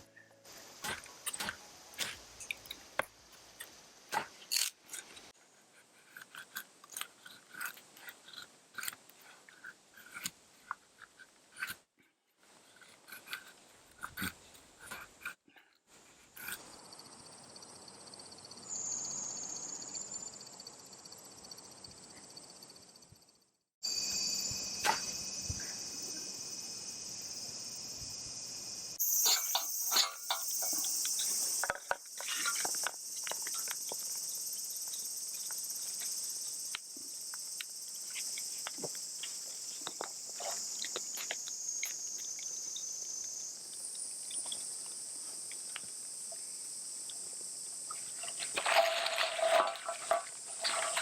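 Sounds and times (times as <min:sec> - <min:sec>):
insects droning: 0:16.3 - 0:51.0.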